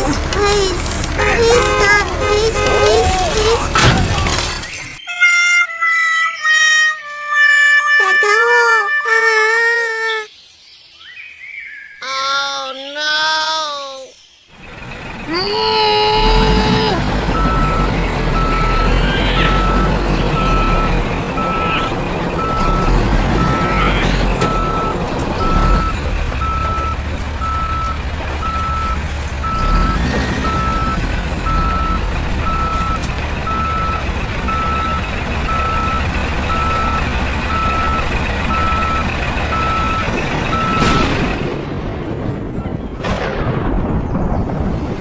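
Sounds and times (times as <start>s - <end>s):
low engine rumble: 0.0s - 5.0s, 14.6s - 44.7s
reversing alarm beeping: 17.3s - 41.3s.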